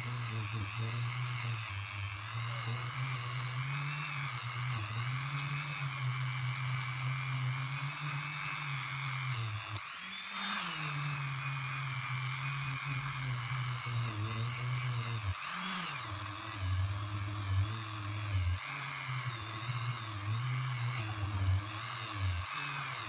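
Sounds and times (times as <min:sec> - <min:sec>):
rotary tool sanding whine: 0:00.0 - 0:23.0.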